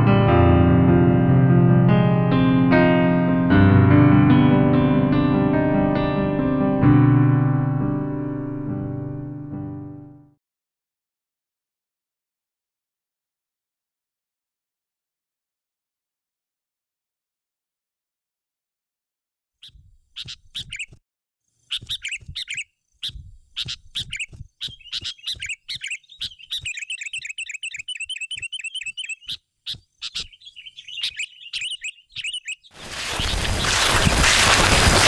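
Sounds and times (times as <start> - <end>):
birds chirping and twittering: 19.6 - 34.9
loud even rushing noise: 32.8 - 35.0.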